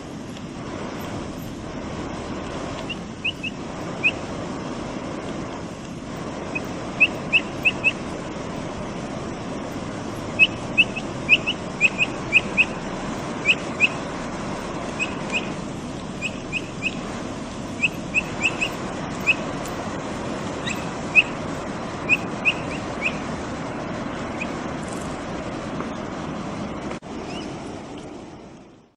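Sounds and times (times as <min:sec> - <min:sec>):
background hiss: 0:00.0 - 0:28.9
capybara chirping whistles: 0:02.8 - 0:04.2, 0:06.5 - 0:08.1, 0:10.3 - 0:12.8, 0:13.4 - 0:14.1, 0:14.9 - 0:15.6, 0:16.2 - 0:17.1, 0:17.7 - 0:19.5, 0:20.6 - 0:23.3.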